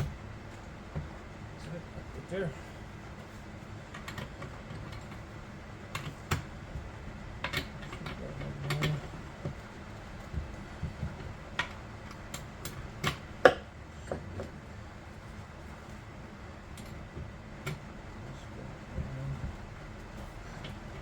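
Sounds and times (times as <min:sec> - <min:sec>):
tools clicking and tapping on workbench: 0:03.9 - 0:05.2, 0:05.9 - 0:14.5.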